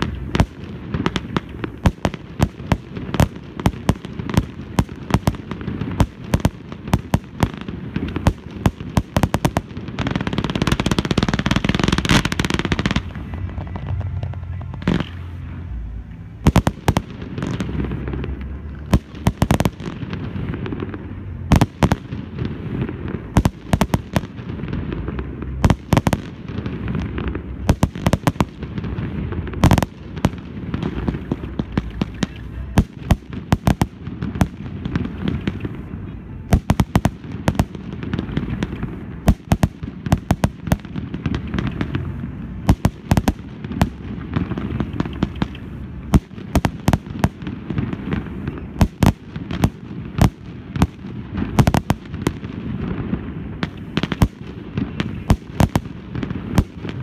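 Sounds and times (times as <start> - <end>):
low rumble: 0.0 - 39.3
fireworks bangs and crackles: 0.0 - 57.0.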